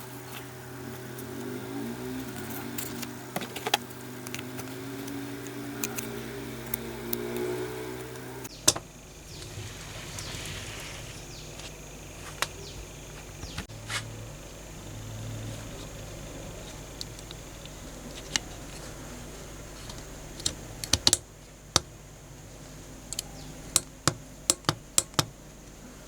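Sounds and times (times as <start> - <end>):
high whines: 0.0 - 8.5
small electric motor humming: 0.0 - 8.6.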